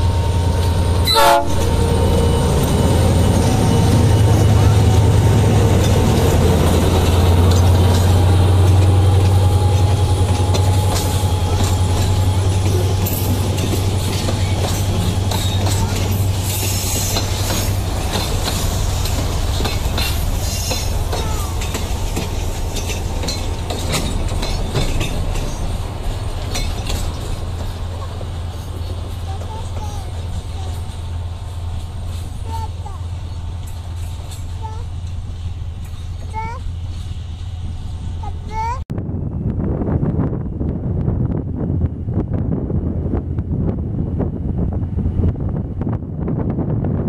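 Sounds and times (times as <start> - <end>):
train low rumble: 0.0 - 47.0
wheels clicking over rail joints: 2.6 - 37.1.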